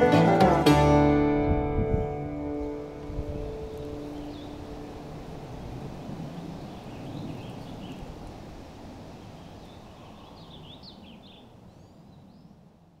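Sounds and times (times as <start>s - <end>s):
small birds chirping: 3.2s - 8.4s, 9.0s - 12.7s.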